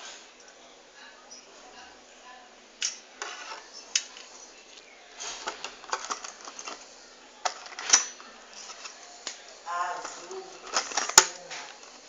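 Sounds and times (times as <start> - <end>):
packaging rustling: 5.2 - 6.9, 9.9 - 12.0.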